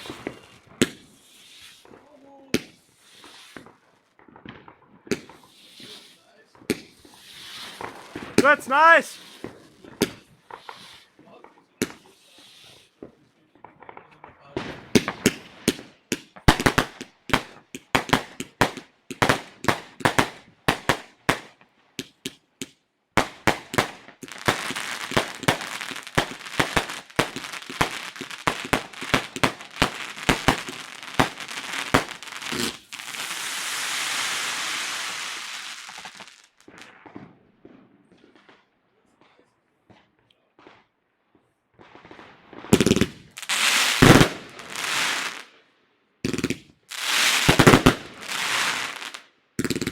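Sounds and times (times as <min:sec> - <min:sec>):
fireworks hissing: 0:00.0 - 0:03.8, 0:05.1 - 0:13.0, 0:24.1 - 0:36.8, 0:42.8 - 0:45.5, 0:46.3 - 0:49.9
firework bangs: 0:00.0 - 0:38.7, 0:41.8 - 0:45.5, 0:46.2 - 0:49.9
fireworks crackling: 0:00.0 - 0:38.7, 0:41.7 - 0:45.6, 0:46.2 - 0:49.9.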